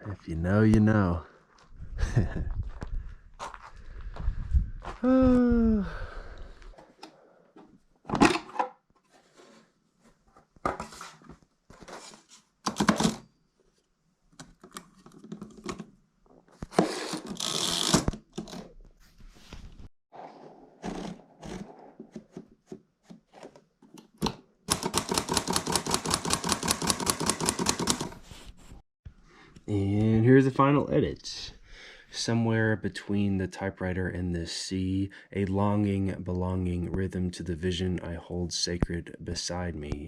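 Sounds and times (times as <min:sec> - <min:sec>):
rustling noise: 0:18.8 - 0:23.6, 0:28.0 - 0:28.8.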